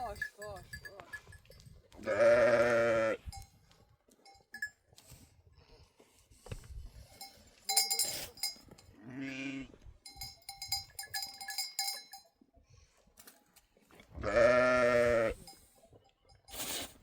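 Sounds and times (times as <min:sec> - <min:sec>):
livestock bells clinking: 0:00.0 - 0:02.0, 0:03.2 - 0:05.2, 0:07.0 - 0:09.0, 0:10.0 - 0:12.4, 0:15.3 - 0:16.7
sheep or goat bleat: 0:02.0 - 0:03.3, 0:09.0 - 0:09.8, 0:14.2 - 0:15.4.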